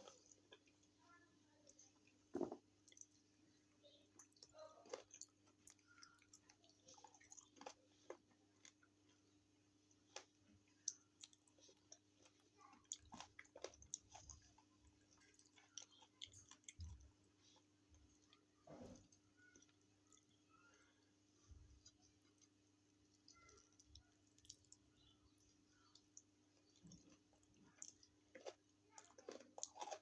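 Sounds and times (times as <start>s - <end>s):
chewing and crunching: 0.0s - 30.0s.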